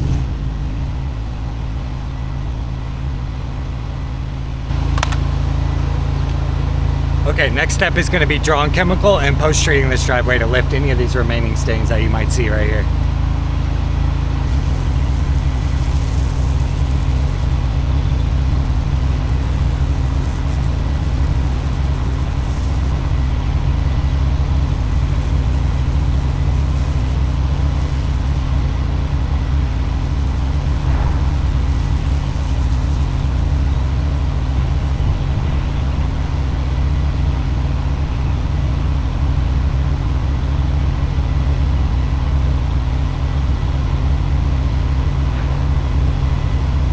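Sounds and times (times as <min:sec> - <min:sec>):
pressure washer engine running: 0:00.0 - 0:46.9
spray hiss: 0:14.4 - 0:40.8, 0:44.9 - 0:46.9.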